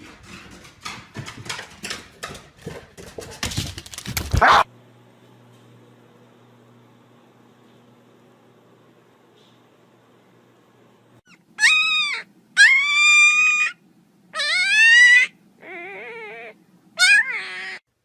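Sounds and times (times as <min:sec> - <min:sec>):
animal crying loudly: 0:04.4 - 0:04.7, 0:11.3 - 0:13.8, 0:14.4 - 0:17.8.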